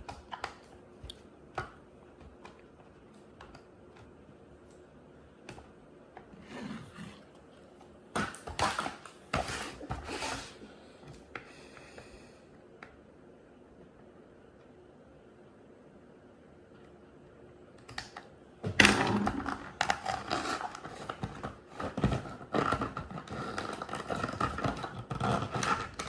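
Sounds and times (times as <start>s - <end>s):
packaging scraping and rustling: 8.2s - 10.6s, 19.0s - 26.0s
toy packaging being opened: 19.2s - 26.0s.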